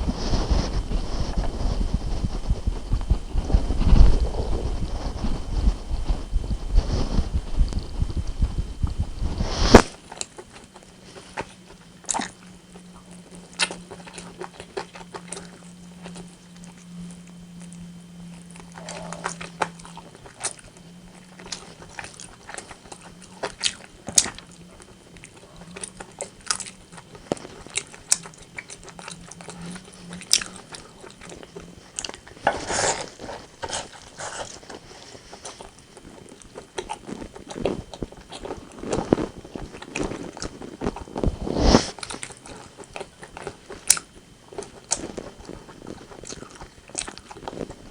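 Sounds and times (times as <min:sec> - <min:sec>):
low steady hum: 0:00.0 - 0:47.9
person chewing and biting: 0:18.5 - 0:47.8.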